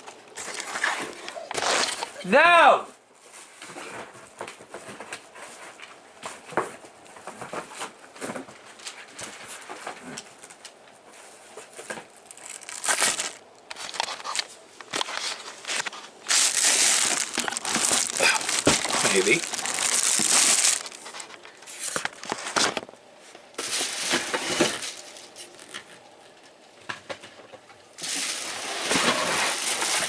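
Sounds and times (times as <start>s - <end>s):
cardboard and plastic rustling: 0.4s - 2.2s, 3.2s - 26.0s, 26.9s - 30.0s
plastic wrap crinkling: 11.6s - 22.9s, 23.6s - 25.9s, 28.0s - 30.0s.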